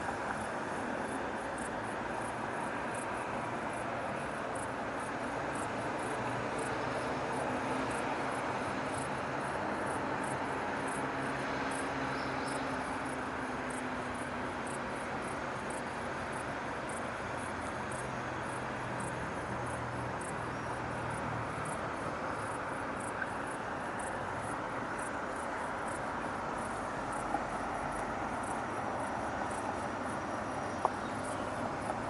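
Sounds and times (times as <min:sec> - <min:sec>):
crickets chirping: 0:00.0 - 0:32.0
distant city traffic: 0:00.0 - 0:32.0
passing vehicle hum: 0:00.0 - 0:32.0.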